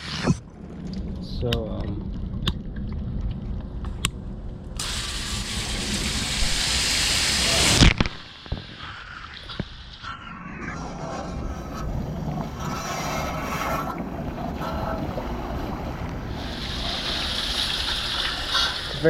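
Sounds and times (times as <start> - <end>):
low rumble: 0.3 - 18.3
hose spraying water on metal unit: 4.8 - 7.8, 16.3 - 19.0.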